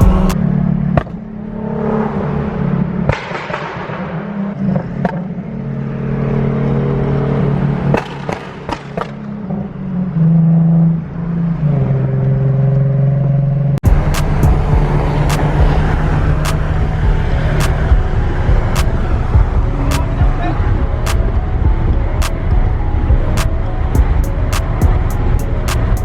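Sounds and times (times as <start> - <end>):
sharp exhaust cracks: 0.0 - 0.4, 13.8 - 20.5
car engine and exhaust: 0.0 - 26.0.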